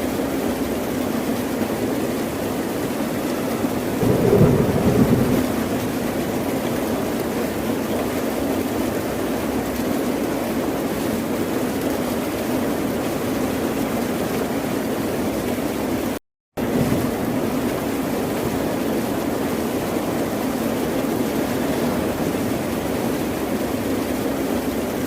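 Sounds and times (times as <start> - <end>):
ocean surf: 4.0 - 6.4.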